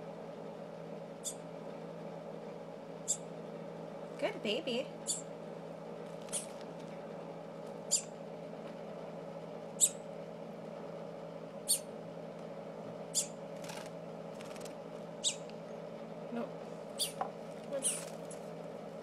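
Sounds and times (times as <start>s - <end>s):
baby songbird cheeping: 1.2s - 1.5s, 3.0s - 3.3s, 5.0s - 5.4s, 6.2s - 6.6s, 7.8s - 8.2s, 9.7s - 10.1s, 11.6s - 11.9s, 13.1s - 13.9s, 15.2s - 15.5s, 16.9s - 18.2s.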